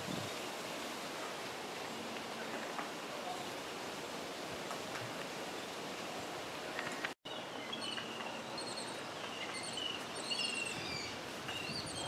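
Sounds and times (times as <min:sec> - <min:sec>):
steady outdoor hiss: 0:00.0 - 0:12.0
birds chirping and trilling: 0:07.3 - 0:12.0.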